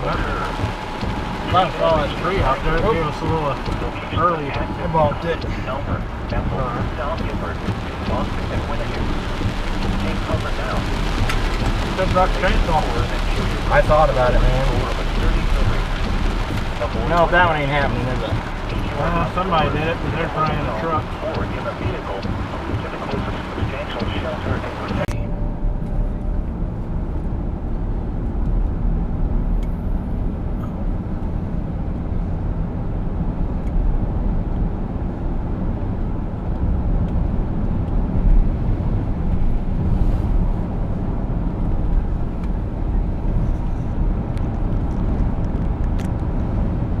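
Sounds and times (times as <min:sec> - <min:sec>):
vehicle engine and tyre rumble: 0:00.0 - 0:47.0.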